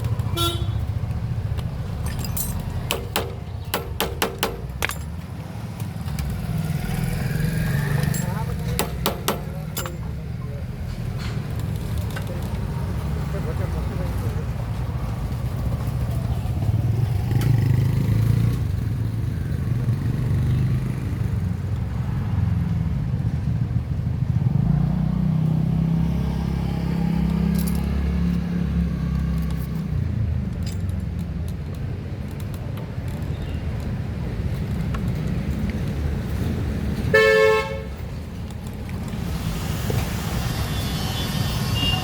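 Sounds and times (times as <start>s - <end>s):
vehicle engines rumbling: 0.0s - 42.0s
light metallic clinks: 2.0s - 5.4s, 7.7s - 10.5s.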